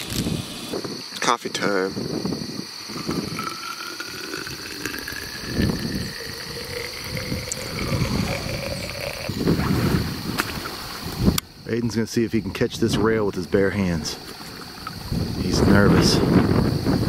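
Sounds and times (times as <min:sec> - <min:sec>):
insects trilling: 0:00.0 - 0:17.0
low rumbling microphone bumps: 0:04.4 - 0:11.6, 0:12.4 - 0:17.0.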